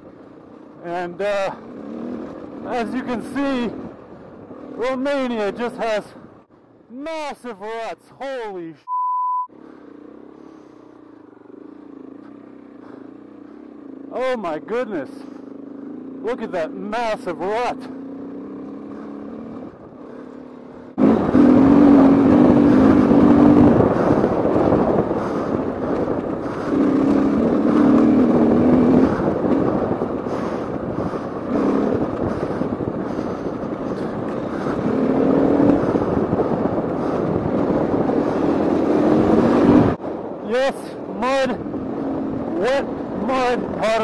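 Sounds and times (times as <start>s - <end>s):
motorcycle engine revving: 0.0s - 6.5s, 9.5s - 44.0s
wind rushing: 20.9s - 43.8s.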